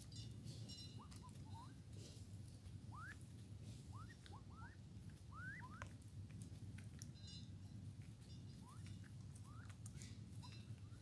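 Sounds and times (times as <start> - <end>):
faint bird whistles: 0.0 - 1.8, 2.9 - 5.9, 8.5 - 9.8
low steady rumble: 0.0 - 11.0
faint clicks: 5.0 - 11.0.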